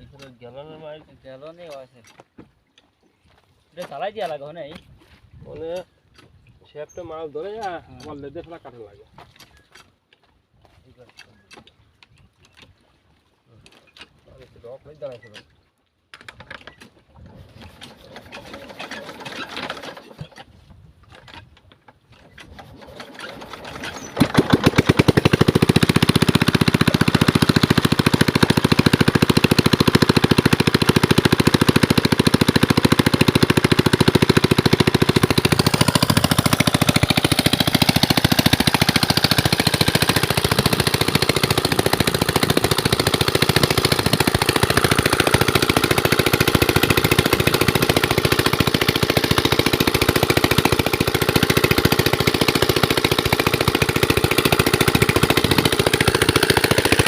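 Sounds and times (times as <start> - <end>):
diesel engine knocking: 24.3 - 57.0.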